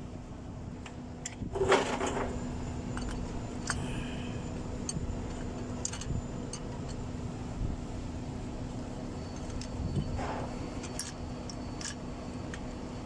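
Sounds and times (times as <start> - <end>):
low hum: 0.0 - 13.0
metal parts and tools clinking: 1.2 - 7.1, 9.1 - 13.0.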